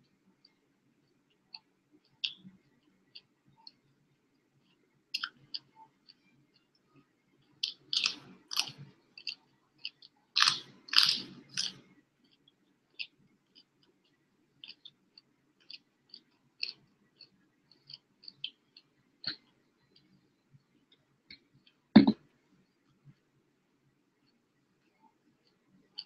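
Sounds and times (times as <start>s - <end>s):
person chewing food: 4.6s - 6.8s, 7.4s - 20.2s, 25.4s - 26.0s
crunching: 7.4s - 11.9s.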